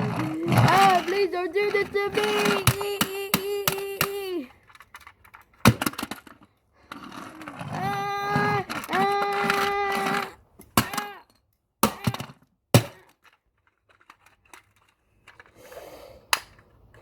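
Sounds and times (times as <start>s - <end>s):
wailing voice: 0.0s - 4.5s, 7.4s - 10.3s
hammer cracking plastic toy: 0.0s - 15.5s, 16.3s - 16.9s.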